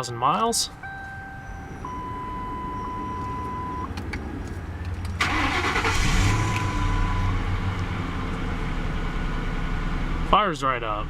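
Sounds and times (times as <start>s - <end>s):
dashboard warning tone: 0.0s - 7.4s
car engine starting and idling: 0.6s - 11.0s.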